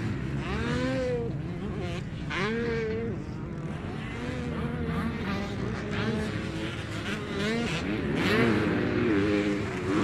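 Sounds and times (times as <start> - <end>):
motocross engines revving: 0.0 - 10.0.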